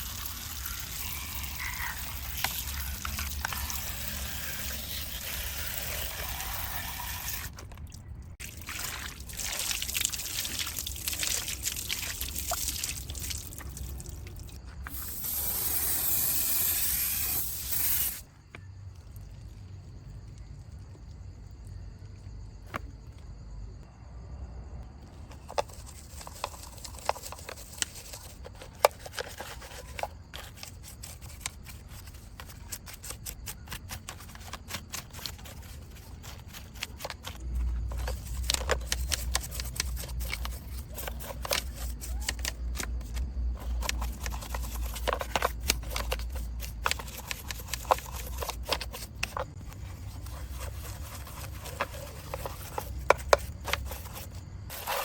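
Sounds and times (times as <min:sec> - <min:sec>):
small clicks taps and scrapes: 0:25.3 - 0:54.4.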